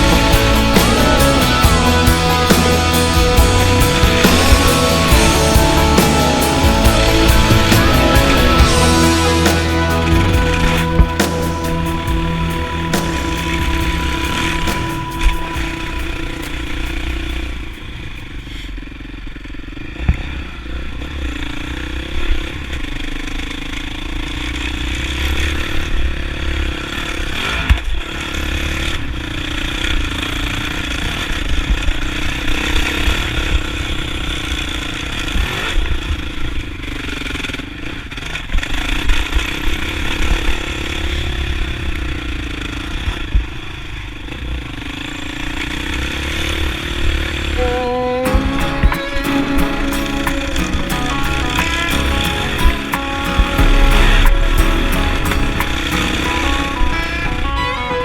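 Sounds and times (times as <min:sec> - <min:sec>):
dirt bike engine revving: 0:00.0 - 0:18.6
low rumble: 0:00.0 - 0:18.6, 0:50.3 - 0:57.6.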